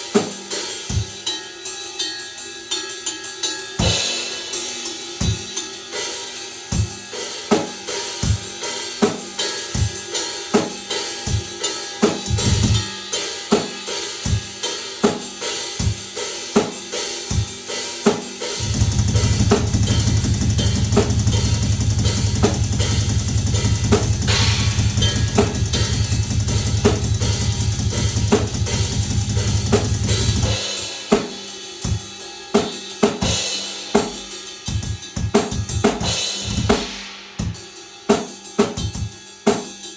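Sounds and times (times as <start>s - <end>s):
drum kit beat: 0.0s - 39.9s
fast run of low drum strokes: 18.6s - 32.0s.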